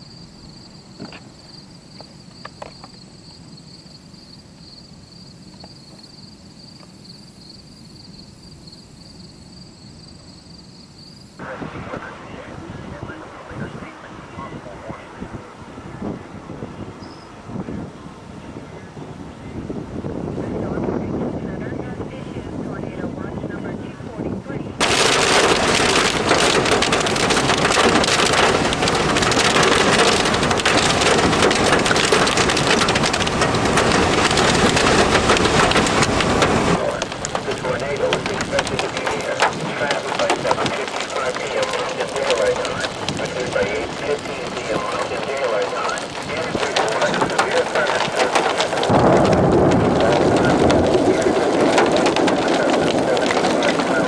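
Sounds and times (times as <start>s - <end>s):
insects trilling: 0.0s - 11.4s
heavy rain pattering: 11.4s - 16.9s, 19.6s - 54.0s
low outdoor rumble: 11.4s - 54.0s
wind buffeting microphone: 11.4s - 54.0s.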